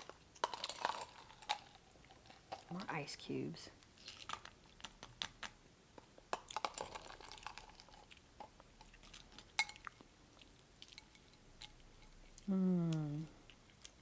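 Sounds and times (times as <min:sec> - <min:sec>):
spoon and ice cubes clinking: 0:00.0 - 0:02.9
chewing: 0:06.4 - 0:14.0.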